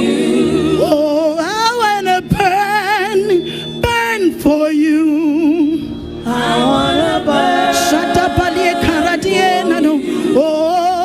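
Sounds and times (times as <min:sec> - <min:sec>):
group singing gospel chorus: 0:00.0 - 0:01.5, 0:06.2 - 0:11.0.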